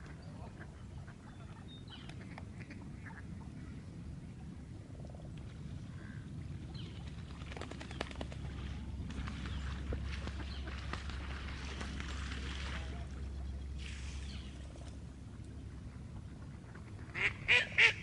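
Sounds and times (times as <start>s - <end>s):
steady low rumble: 0.0s - 18.0s
wetland birds calling: 7.7s - 15.7s.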